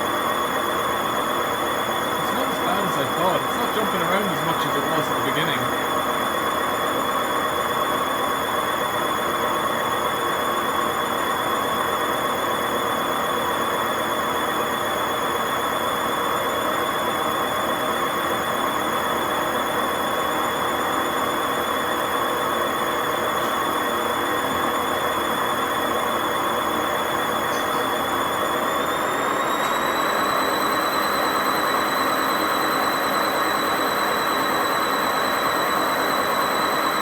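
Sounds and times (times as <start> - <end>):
high-pitched bearing whine: 1.3 - 6.2, 25.6 - 37.0.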